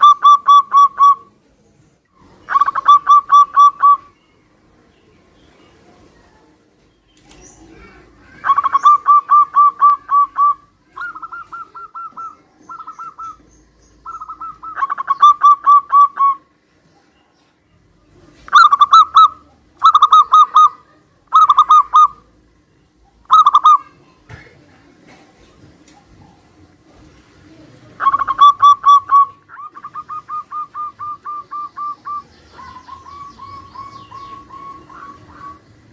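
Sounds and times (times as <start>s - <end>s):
doves cooing: 0.0s - 1.4s, 2.2s - 4.2s, 7.2s - 16.5s, 18.3s - 22.5s, 23.1s - 23.9s, 24.9s - 35.9s.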